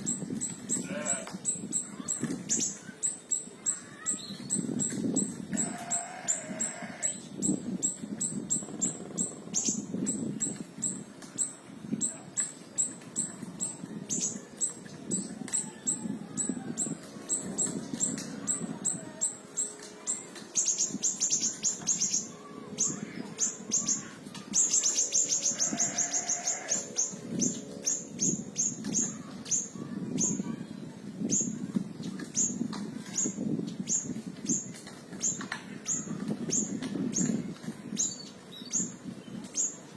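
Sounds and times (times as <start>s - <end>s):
songbird chipping and trilling: 0.0s - 30.5s.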